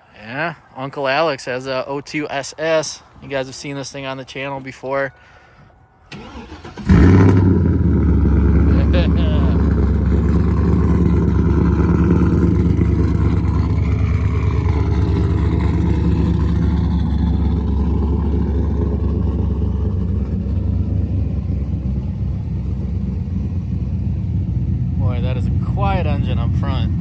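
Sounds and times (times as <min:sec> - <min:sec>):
car engine idling: 0:06.1 - 0:27.0.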